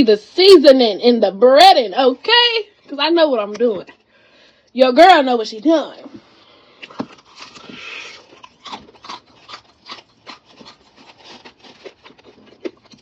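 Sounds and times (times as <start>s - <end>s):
crunchy chewing of fried chicken: 6.2s - 13.0s.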